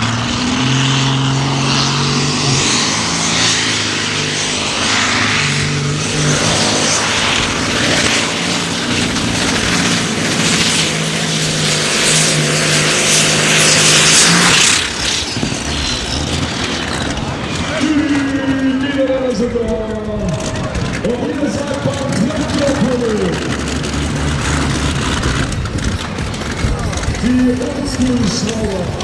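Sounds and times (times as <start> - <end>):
tractor engine running hard: 0.0 - 29.0.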